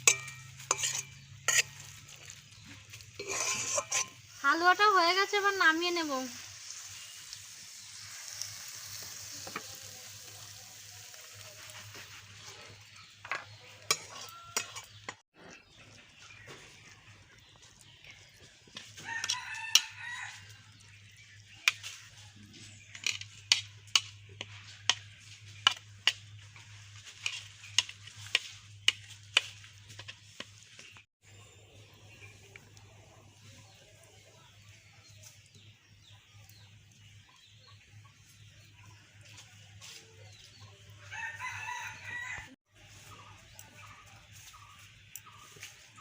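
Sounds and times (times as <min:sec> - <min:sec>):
spoon scraping a pan: 0:00.0 - 0:04.9, 0:06.3 - 0:15.7, 0:18.4 - 0:31.0
faint sizzle: 0:00.0 - 0:46.0
rooster crowing: 0:19.0 - 0:20.6, 0:41.0 - 0:42.6.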